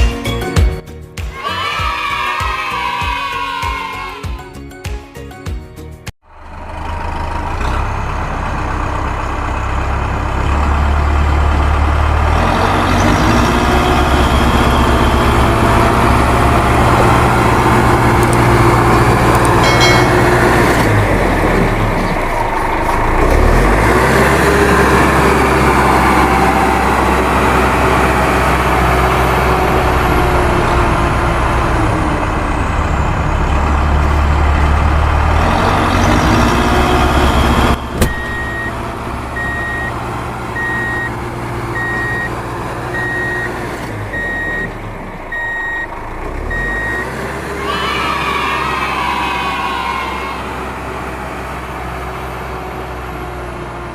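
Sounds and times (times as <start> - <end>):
heavy vehicle engine rumbling: 6.0 - 53.9
reversing alarm beeping: 36.8 - 38.8, 39.4 - 47.2.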